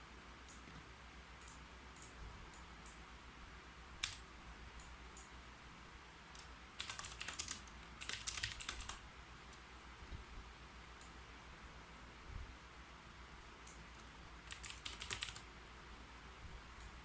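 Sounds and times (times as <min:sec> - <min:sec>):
keyboard keystrokes: 0:04.0 - 0:04.2, 0:06.4 - 0:09.0, 0:13.7 - 0:15.5
rapid keyboard typing: 0:04.0 - 0:04.2, 0:06.4 - 0:09.0, 0:14.0 - 0:15.5.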